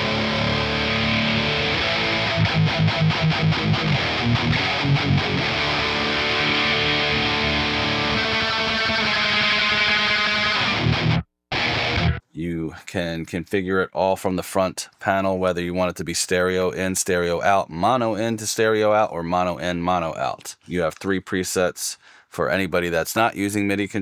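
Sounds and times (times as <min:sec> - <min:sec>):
distorted electric guitar chords: 0:00.0 - 0:12.2
fast chugging guitar rhythm: 0:00.0 - 0:12.2.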